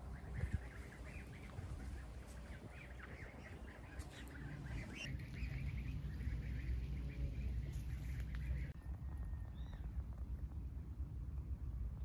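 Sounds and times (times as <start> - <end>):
many birds calling: 0.0 - 8.8
low rumble: 0.0 - 12.0.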